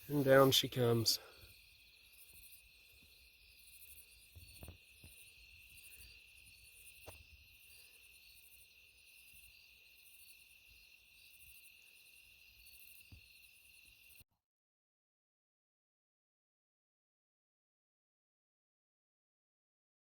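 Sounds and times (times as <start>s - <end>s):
crickets and insects trilling: 0.0s - 14.2s.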